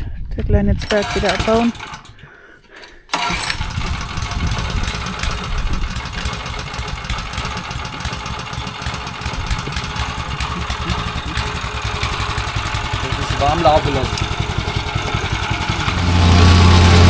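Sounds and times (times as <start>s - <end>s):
plate compactor engine running: 0.8s - 2.2s, 2.8s - 17.0s.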